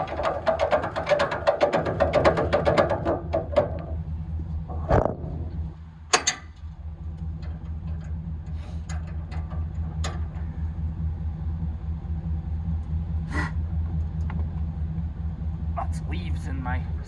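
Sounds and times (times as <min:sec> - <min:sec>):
truck engine idling: 0:00.0 - 0:17.0
metallic clicks and clanks: 0:06.1 - 0:10.6.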